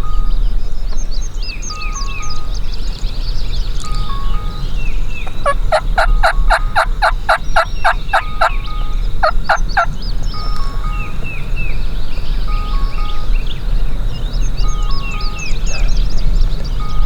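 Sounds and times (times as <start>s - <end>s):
turkey yelping: 3.6s - 13.3s.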